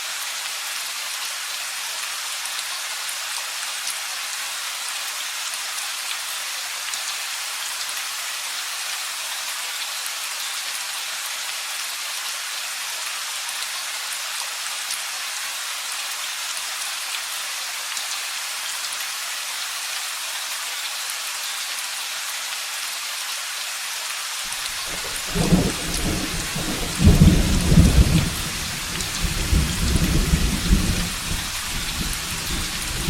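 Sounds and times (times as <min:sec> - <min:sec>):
steady rain falling: 0:00.0 - 0:33.0
low thunder rumble: 0:24.9 - 0:33.0.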